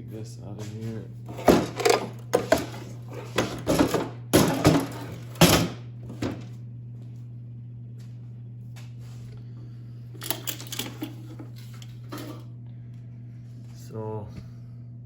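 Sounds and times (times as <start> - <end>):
steady low hum: 0.0 - 15.0
metal clanks and knocks: 1.3 - 6.3.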